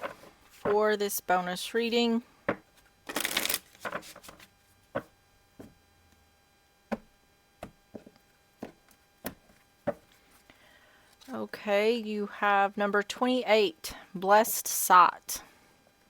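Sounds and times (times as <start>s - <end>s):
faint steady hum: 0.0s - 16.0s
cards tapping and flicking: 2.5s - 5.7s
cards rustling: 2.8s - 5.1s.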